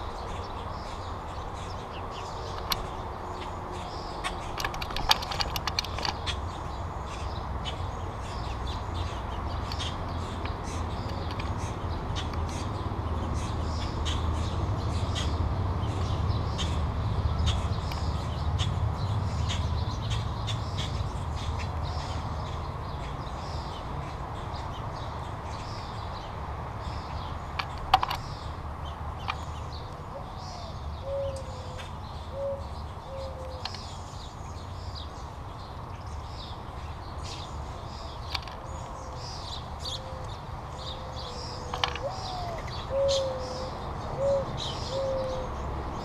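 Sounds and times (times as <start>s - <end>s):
beaks and feet tapping on tray: 27.0s - 29.7s, 38.1s - 39.2s, 41.7s - 42.8s.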